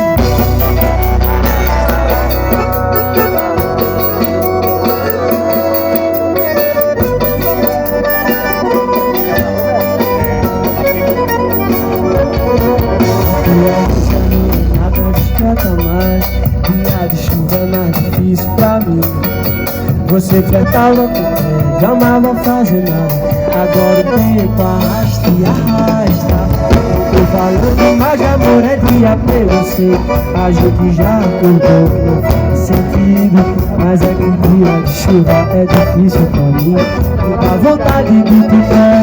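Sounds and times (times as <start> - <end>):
live band playing pop: 0.0 - 39.0.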